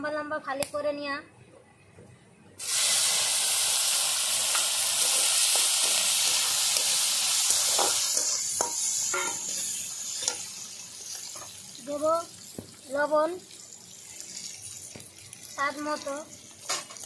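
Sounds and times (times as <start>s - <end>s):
food sizzling in hot oil: 2.6s - 17.0s
metal spatula clinking on pan: 7.7s - 10.5s.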